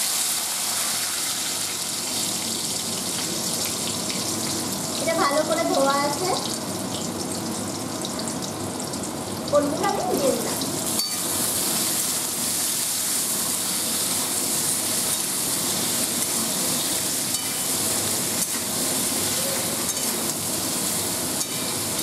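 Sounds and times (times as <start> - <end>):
vegetables sizzling in hot oil: 0.0 - 22.0.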